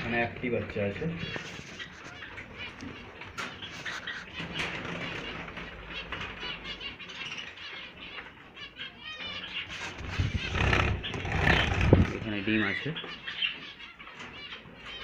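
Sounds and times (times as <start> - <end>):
small birds chirping: 0.0 - 15.0
wings fluttering: 9.7 - 12.4
low bumping: 10.0 - 12.4.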